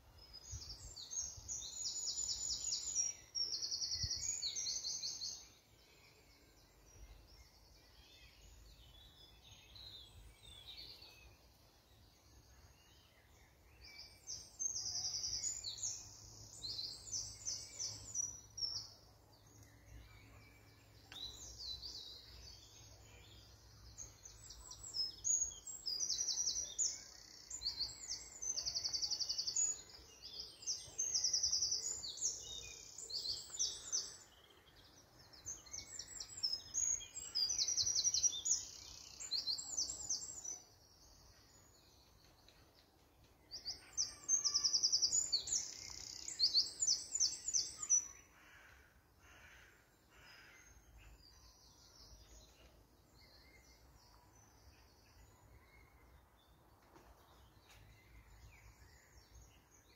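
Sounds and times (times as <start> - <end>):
small birds chirping and trilling: 0.0 - 59.9.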